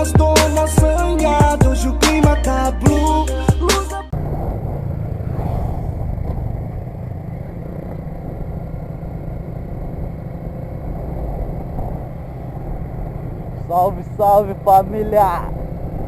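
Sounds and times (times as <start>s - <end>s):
motorcycle engine running: 4.1s - 16.0s.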